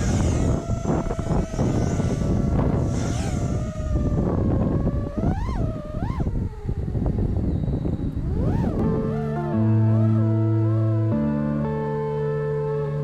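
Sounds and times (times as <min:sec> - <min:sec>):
wind buffeting microphone: 0:00.0 - 0:10.1
quadcopter motors whining: 0:00.0 - 0:11.3.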